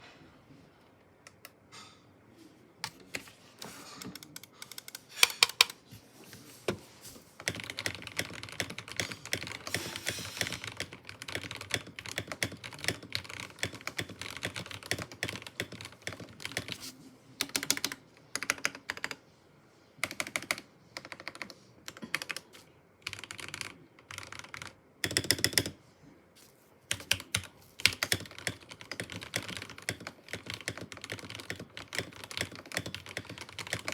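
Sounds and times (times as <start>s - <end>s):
mechanical keyboard typing: 4.0s - 5.8s, 7.4s - 19.2s, 20.0s - 25.8s, 26.9s - 33.9s.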